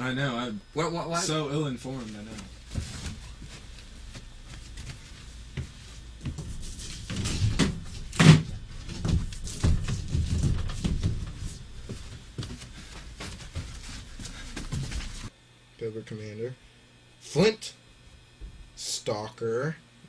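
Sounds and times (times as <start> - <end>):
knocks and thumps of handling: 2.3 - 15.3.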